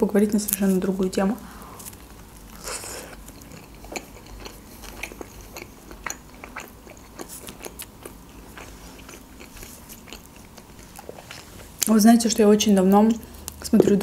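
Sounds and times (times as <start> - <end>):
person chewing food: 1.6 - 11.9.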